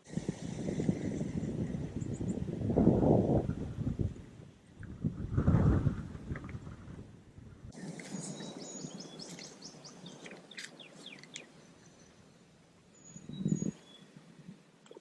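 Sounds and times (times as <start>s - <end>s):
birds chirping: 0.0s - 2.5s, 7.7s - 15.0s
wind rumble on microphone: 0.0s - 10.4s, 13.0s - 14.6s
whistled bird note: 8.0s - 12.1s.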